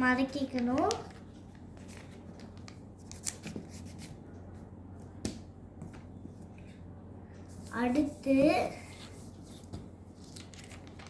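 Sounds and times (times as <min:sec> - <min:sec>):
paper rustling: 0:00.6 - 0:04.2, 0:08.7 - 0:11.0
sharp paper crackles: 0:10.2 - 0:11.0.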